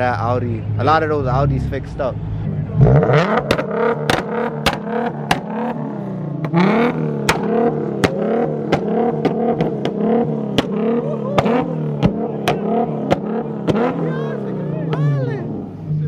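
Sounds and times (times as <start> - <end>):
car engine revving in short blips: 2.6 - 16.0
exhaust crack or pop: 2.8 - 5.8, 6.4 - 14.0.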